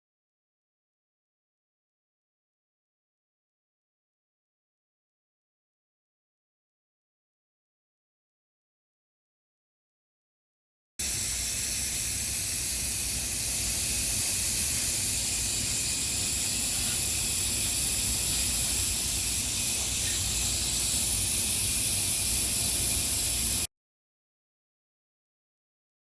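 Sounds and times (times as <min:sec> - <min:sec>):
steady hiss: 0:11.0 - 0:23.7.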